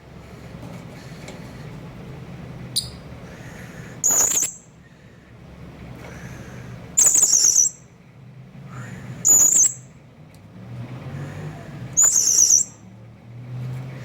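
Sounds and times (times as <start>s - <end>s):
parrot shrill calls: 4.0s - 4.7s, 7.0s - 7.8s, 9.2s - 9.9s, 12.0s - 12.8s.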